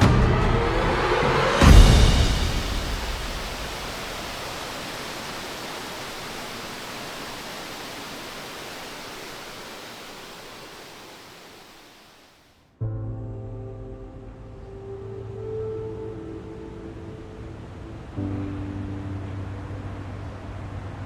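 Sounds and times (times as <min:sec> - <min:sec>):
waterfall rushing: 0:01.6 - 0:12.4.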